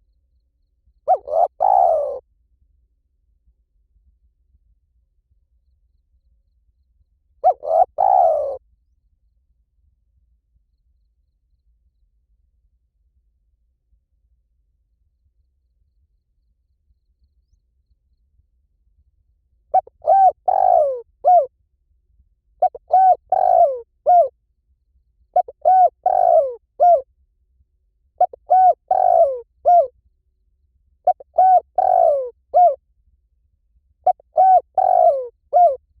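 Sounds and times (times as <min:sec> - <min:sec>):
dove cooing: 0:01.1 - 0:02.2, 0:07.4 - 0:08.6, 0:19.7 - 0:21.5, 0:22.6 - 0:24.3, 0:25.4 - 0:27.0, 0:28.2 - 0:29.9, 0:31.1 - 0:32.8, 0:34.1 - 0:35.8.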